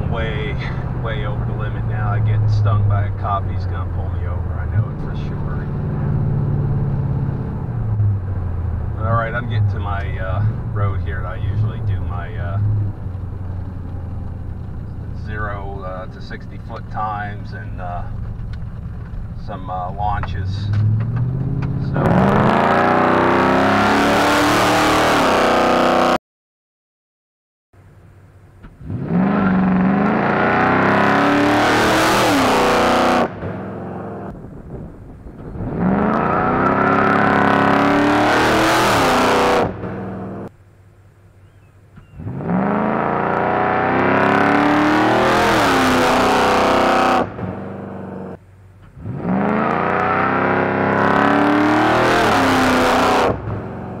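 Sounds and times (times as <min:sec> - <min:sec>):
car engine revving hard: 0:20.7 - 0:26.2, 0:28.8 - 0:34.3, 0:35.6 - 0:40.5, 0:42.2 - 0:48.4, 0:49.0 - 0:54.0.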